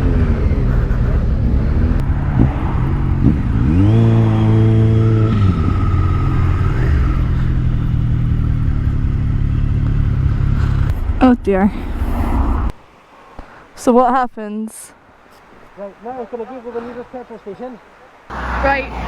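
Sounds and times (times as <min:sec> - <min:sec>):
motorcycle engine revving: 0:00.0 - 0:12.7, 0:18.3 - 0:19.0
low hum: 0:00.0 - 0:12.8
road noise: 0:00.0 - 0:14.0, 0:14.9 - 0:19.0.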